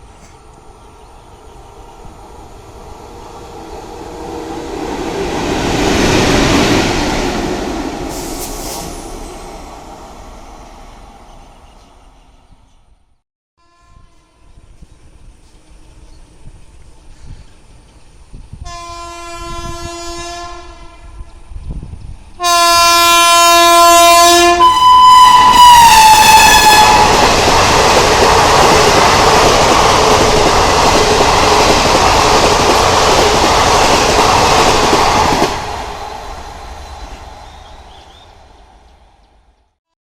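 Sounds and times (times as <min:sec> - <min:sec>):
train horn: 0:13.6 - 0:14.8, 0:18.6 - 0:21.4, 0:22.4 - 0:27.3.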